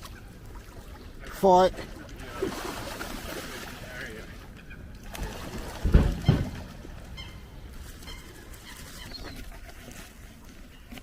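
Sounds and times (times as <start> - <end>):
birds squabbling: 4.2 - 5.4, 6.0 - 10.9.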